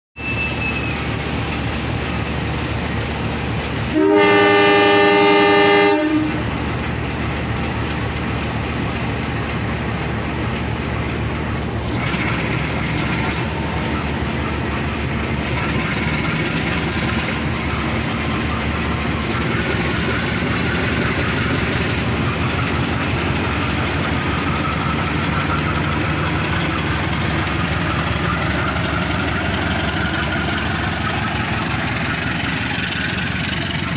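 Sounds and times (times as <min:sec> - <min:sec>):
train running past: 0:00.2 - 0:33.9
train horn: 0:03.9 - 0:06.5.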